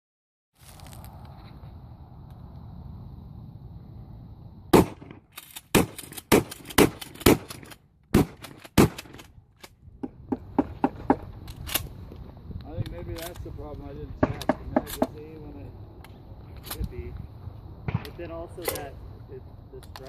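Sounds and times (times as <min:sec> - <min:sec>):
shotgun shots: 0:04.7 - 0:09.2.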